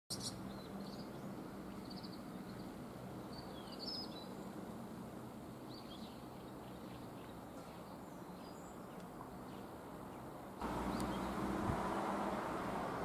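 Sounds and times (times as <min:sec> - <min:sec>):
birds chirping: 0:00.1 - 0:13.0
steady low hum: 0:10.6 - 0:13.0.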